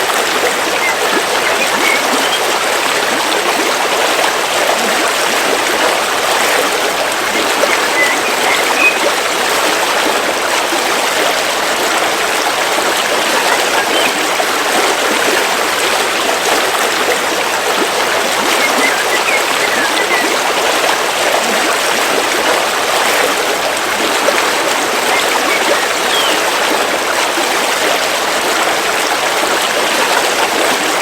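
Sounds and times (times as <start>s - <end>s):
river water rushing: 0.0s - 31.0s
small water splashes: 0.0s - 31.0s.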